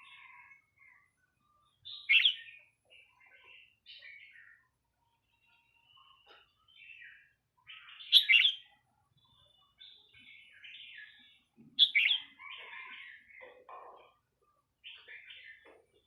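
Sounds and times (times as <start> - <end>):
bird singing loud phrases: 0.0 - 4.8, 5.9 - 13.5.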